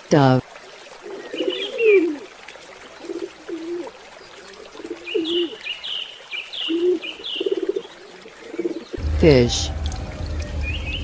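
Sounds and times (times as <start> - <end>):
dove cooing: 1.0 - 2.3, 3.0 - 5.6, 6.7 - 9.0.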